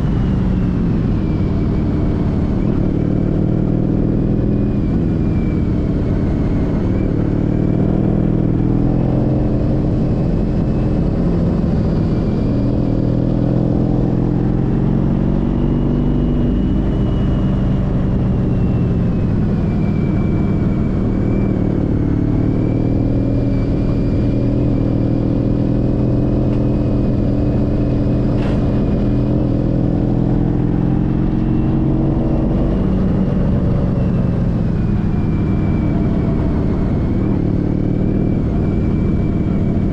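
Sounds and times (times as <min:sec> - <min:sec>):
motorcycle engine running: 0:00.0 - 0:39.9
road noise: 0:00.0 - 0:39.9
wind noise: 0:00.0 - 0:39.9.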